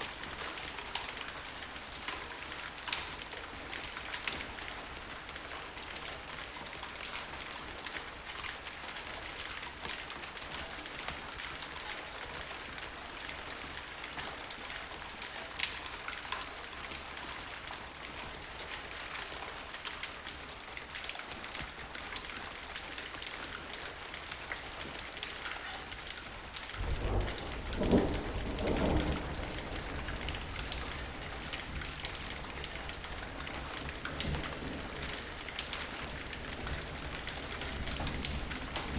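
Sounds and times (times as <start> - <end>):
steady rainfall: 0.0 - 38.9
thunder rumbling: 26.8 - 32.2.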